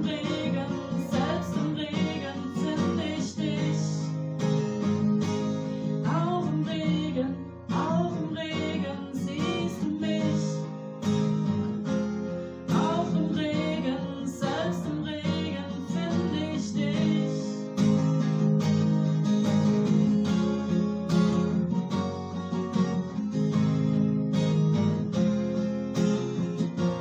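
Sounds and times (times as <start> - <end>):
woman singing: 0.0 - 4.3, 5.9 - 10.9, 12.7 - 17.9
acoustic guitar strumming: 0.0 - 27.0.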